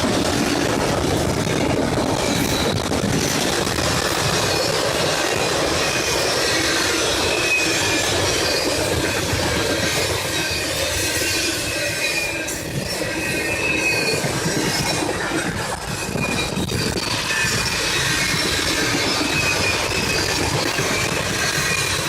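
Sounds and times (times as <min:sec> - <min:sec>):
freight train cars rolling: 0:00.0 - 0:22.0
wheel squeal: 0:05.8 - 0:22.0.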